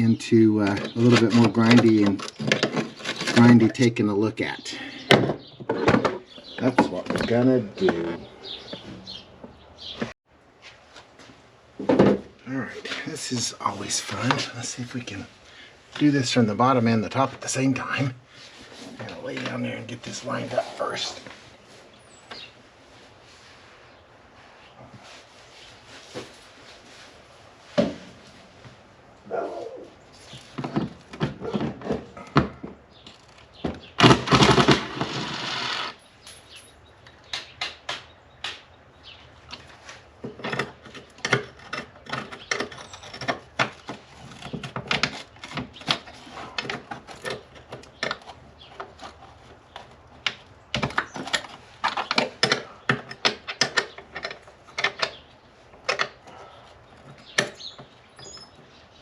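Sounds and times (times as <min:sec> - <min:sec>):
loud rasping noise: 0:34.0 - 0:36.0.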